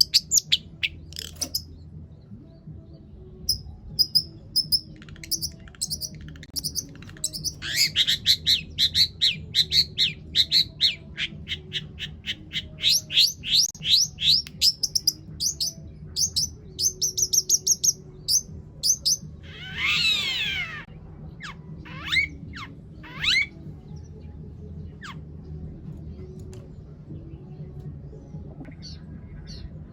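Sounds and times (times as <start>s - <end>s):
bird singing chirps and trills: 0.0s - 29.9s
bird harsh rasping squawk: 19.0s - 23.5s.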